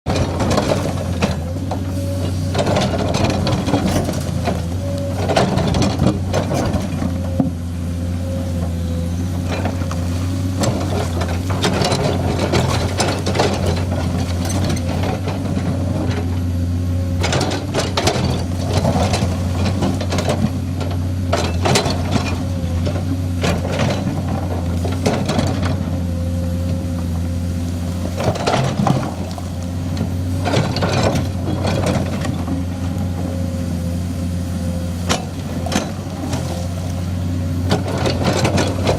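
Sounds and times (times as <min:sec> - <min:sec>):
excavator diesel engine hum: 0:00.1 - 0:38.9.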